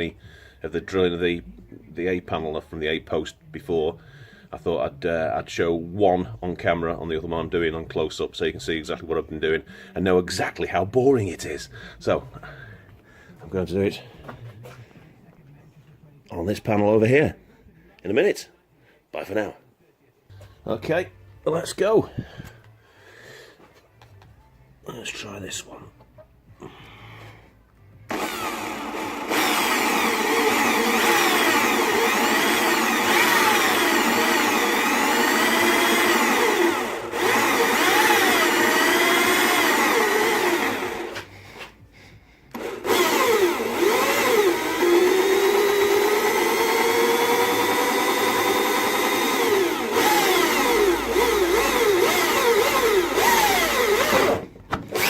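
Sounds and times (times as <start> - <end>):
electric drill screeching through steel: 28.1 - 41.3, 42.5 - 55.0.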